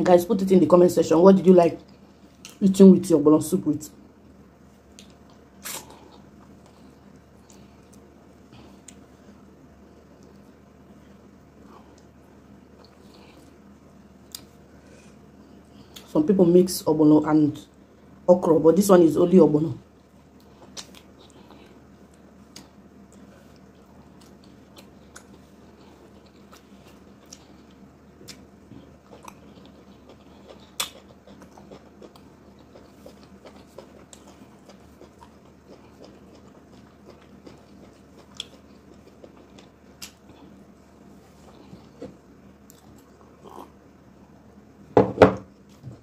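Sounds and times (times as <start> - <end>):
quiet chewing: 4.8 - 16.1, 20.0 - 43.8.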